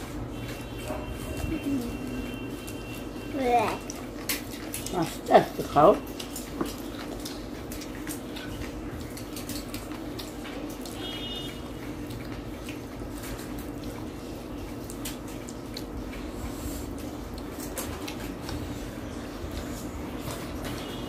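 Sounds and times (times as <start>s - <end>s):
chewing clicks and smacks: 1.6s - 21.0s.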